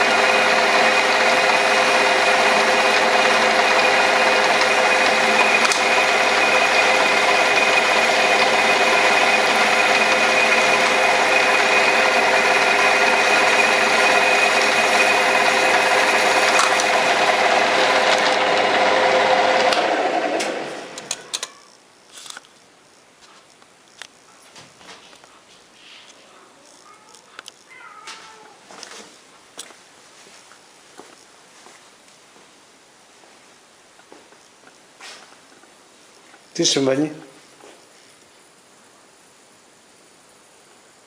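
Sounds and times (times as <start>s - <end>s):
metal lathe whining: 0.0s - 21.4s.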